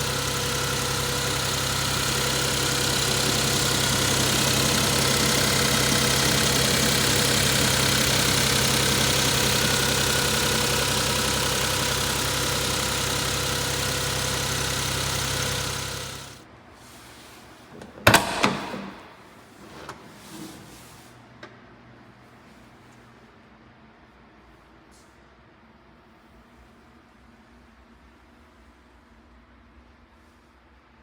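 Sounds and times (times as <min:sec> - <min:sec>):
truck engine idling: 0:00.0 - 0:16.4
sharp clicks or knocks: 0:17.8 - 0:19.2.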